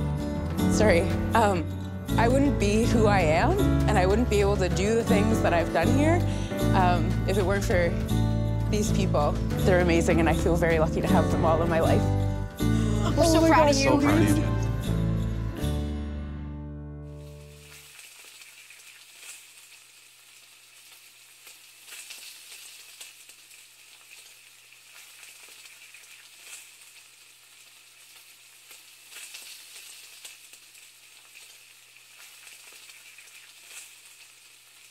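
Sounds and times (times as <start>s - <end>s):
food frying sizzle: 17.2s - 34.9s.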